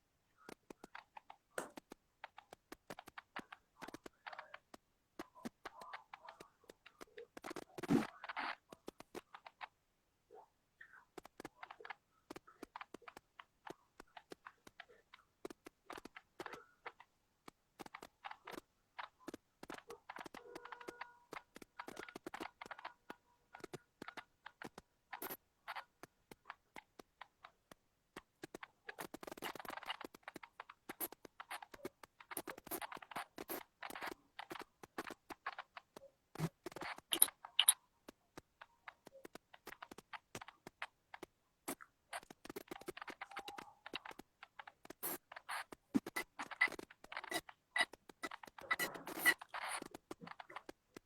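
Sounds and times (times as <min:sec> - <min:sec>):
small clicks and taps: 0:00.0 - 0:09.8, 0:10.8 - 0:51.0
rustling and scraping: 0:00.4 - 0:09.7, 0:28.2 - 0:51.0.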